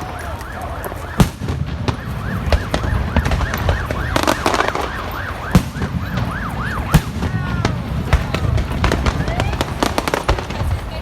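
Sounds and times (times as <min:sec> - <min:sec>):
siren-like yelping tone: 0:00.0 - 0:07.7
fireworks crackling and banging: 0:00.0 - 0:11.0.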